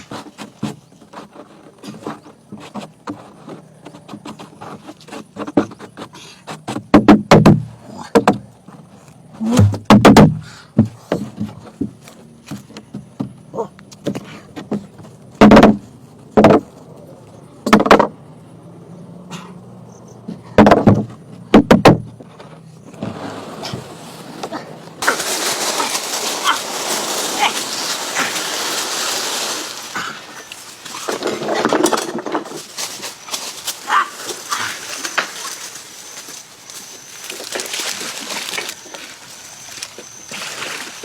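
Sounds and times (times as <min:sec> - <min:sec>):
wood rubbing and scraping: 0:00.0 - 0:07.1, 0:10.8 - 0:17.0, 0:20.2 - 0:41.0
heavy knocks on wood: 0:09.5 - 0:11.6, 0:20.6 - 0:22.2.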